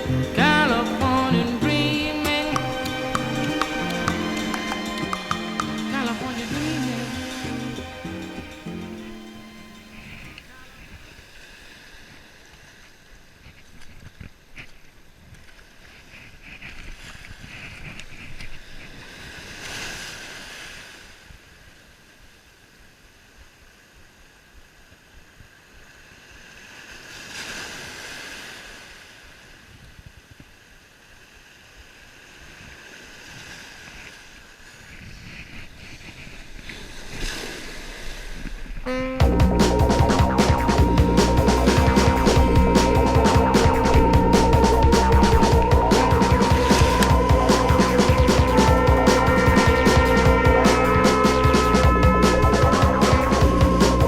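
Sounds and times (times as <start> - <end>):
sea waves breaking on beach: 0.0 - 39.2
wind rumbling on microphone: 32.5 - 54.0.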